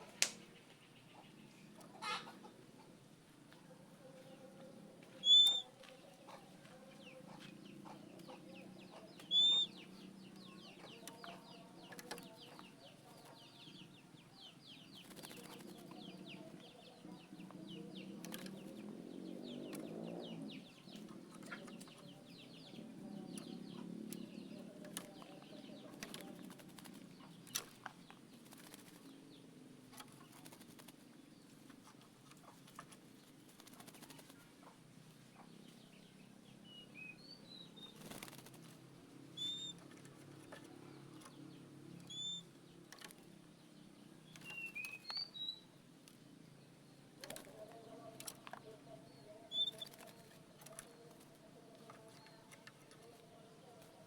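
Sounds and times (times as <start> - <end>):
wing flutters: 14.9 - 16.2, 23.4 - 34.6, 37.8 - 41.3, 49.5 - 53.2.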